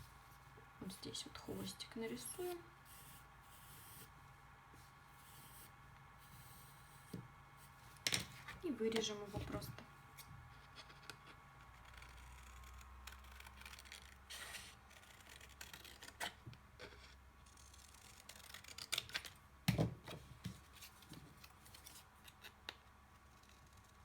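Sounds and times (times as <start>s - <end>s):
scissors snipping paper: 11.8s - 16.4s, 17.5s - 19.4s.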